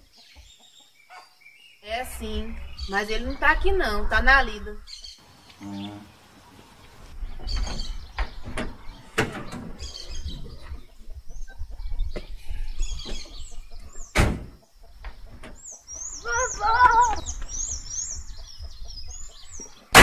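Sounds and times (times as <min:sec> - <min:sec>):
birds chirping: 0:00.0 - 0:20.0
truck door knocks and clicks: 0:14.1 - 0:15.6.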